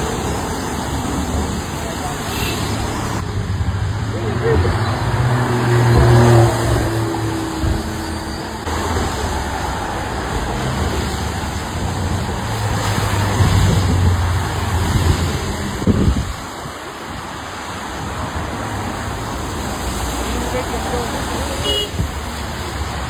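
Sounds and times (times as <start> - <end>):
road traffic noise: 0.0 - 23.0
wind on microphone: 2.9 - 9.2, 10.0 - 19.8, 21.9 - 23.0.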